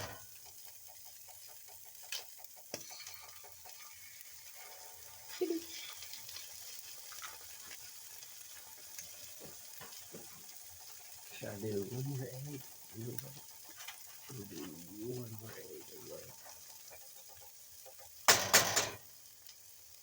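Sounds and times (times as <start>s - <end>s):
chicken sizzling in a pan: 0.0s - 20.0s
utensil knocking on pan: 18.3s - 19.0s.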